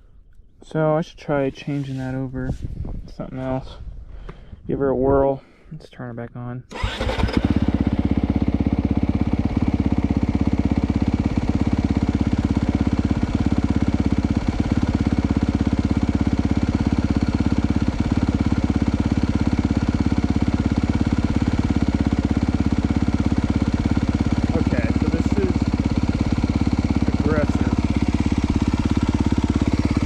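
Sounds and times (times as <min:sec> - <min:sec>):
motorcycle engine idling: 0:06.7 - 0:30.0.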